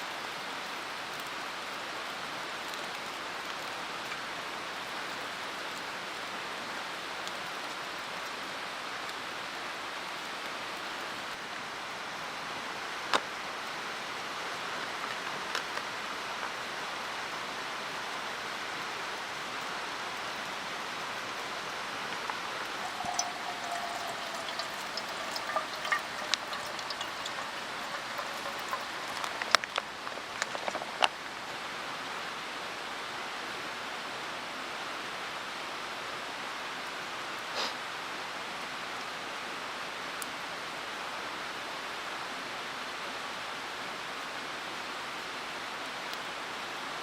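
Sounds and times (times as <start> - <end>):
mountain stream rushing: 20.5 - 32.9.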